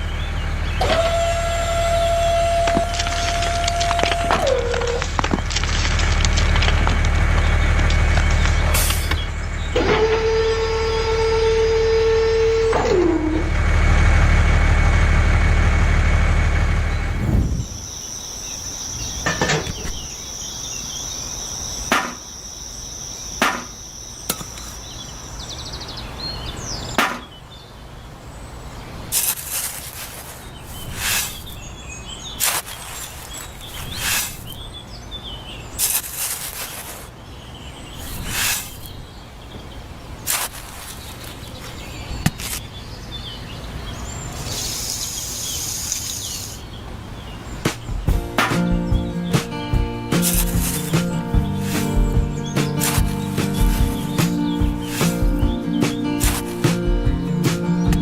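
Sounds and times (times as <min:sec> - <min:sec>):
sharp knocks and taps: 0:47.6 - 0:58.0.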